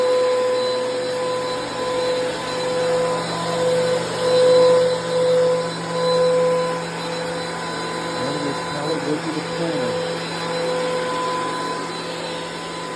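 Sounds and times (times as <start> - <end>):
power planer motor whine: 0.0 - 12.9
planer rushing noise: 7.6 - 12.9.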